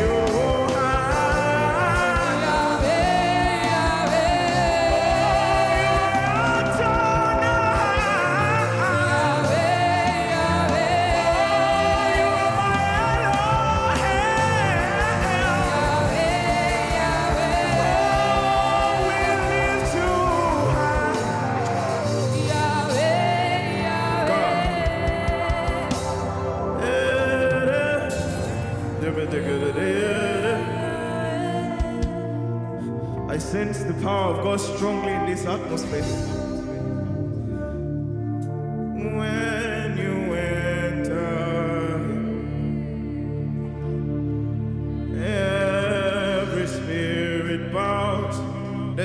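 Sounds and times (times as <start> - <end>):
steady drum beat: 0.0 - 26.4
keyboard: 0.0 - 49.0
voices singing gospel melody: 0.0 - 49.0.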